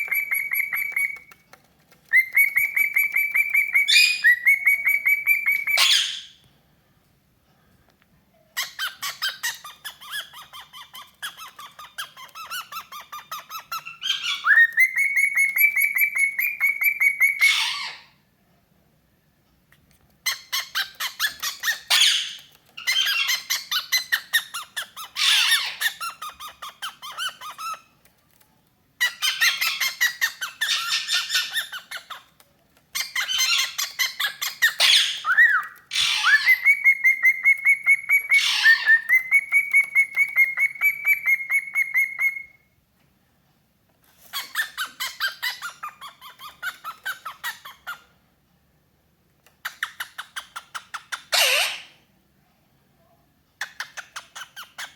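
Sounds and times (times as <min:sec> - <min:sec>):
cockatiel chirping: 0:00.0 - 0:01.4, 0:02.1 - 0:06.4, 0:08.6 - 0:18.1, 0:20.2 - 0:27.9, 0:29.0 - 0:32.3, 0:32.9 - 0:42.6, 0:44.2 - 0:48.0, 0:53.6 - 0:54.9
cockatiel whistle: 0:02.2 - 0:06.2.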